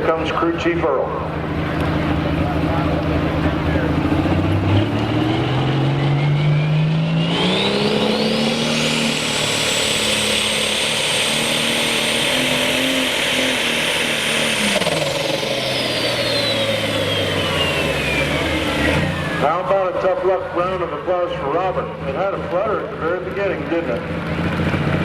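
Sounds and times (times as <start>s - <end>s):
high turbo whine: 0.0s - 25.0s
pulling tractor engine: 0.0s - 25.0s.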